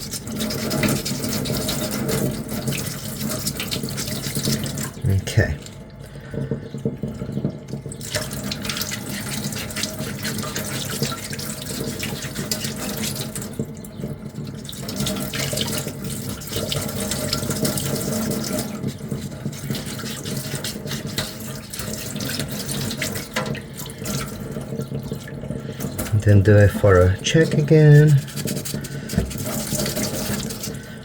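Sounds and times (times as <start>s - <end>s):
sandpaper rasping on plastic: 27.9s - 30.8s.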